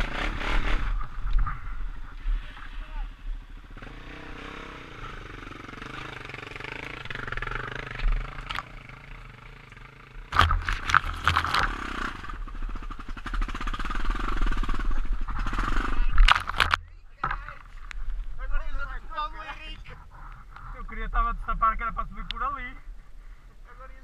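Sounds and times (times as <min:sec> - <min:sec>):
motorcycle engine revving: 0:00.0 - 0:16.8.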